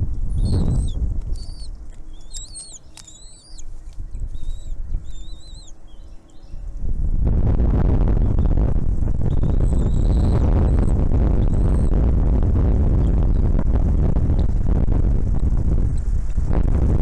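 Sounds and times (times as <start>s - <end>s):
low rumble on microphone: 0.0s - 17.0s
small birds chirping: 0.1s - 6.8s, 8.2s - 12.0s.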